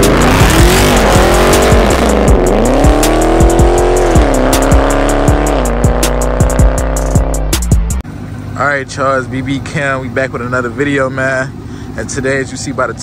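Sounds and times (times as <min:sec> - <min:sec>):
hip-hop beat: 0:00.0 - 0:08.0
car engine revving: 0:00.0 - 0:12.2.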